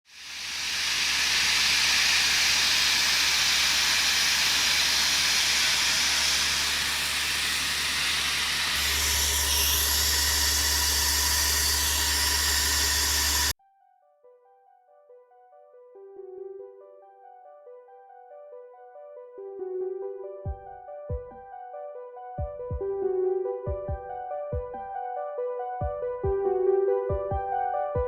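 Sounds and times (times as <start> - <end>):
loud hissing rush: 0.2 - 13.5.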